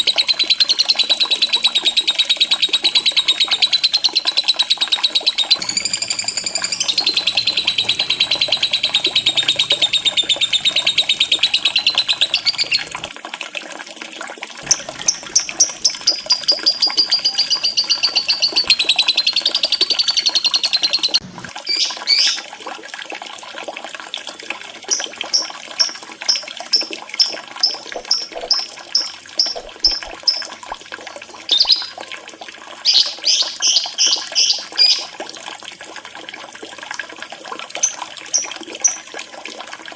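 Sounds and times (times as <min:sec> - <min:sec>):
bird trilling and chirping: 0:00.0 - 0:13.1, 0:14.6 - 0:22.3
running water trickling: 0:00.0 - 0:39.9.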